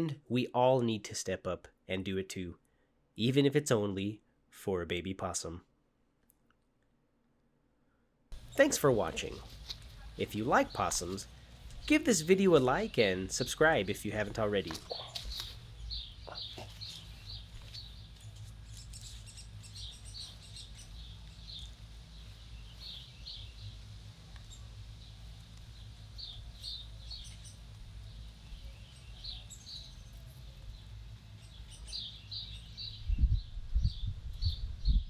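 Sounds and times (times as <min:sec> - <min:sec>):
small birds chirping: 0:08.3 - 0:35.0.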